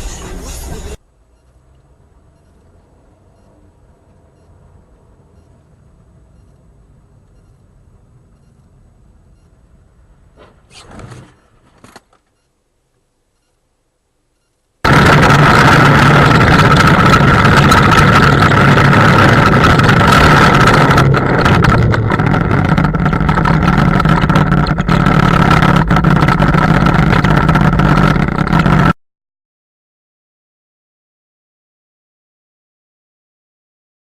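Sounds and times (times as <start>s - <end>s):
car engine and road noise: 0.0s - 12.8s, 14.8s - 29.0s
high whine: 14.4s - 29.0s.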